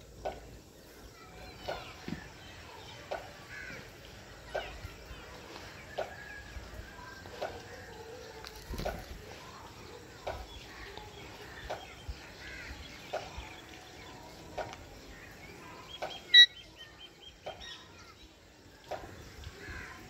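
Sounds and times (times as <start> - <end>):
birds chirping: 0.0 - 20.0
loud sharp bird call: 15.9 - 16.8.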